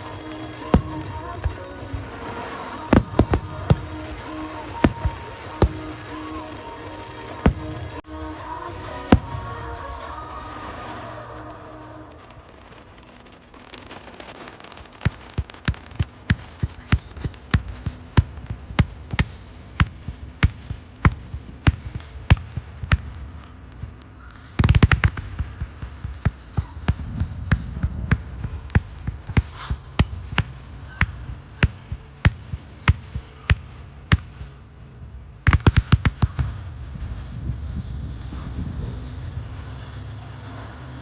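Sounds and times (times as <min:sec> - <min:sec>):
fireworks banging: 0:00.0 - 0:08.1.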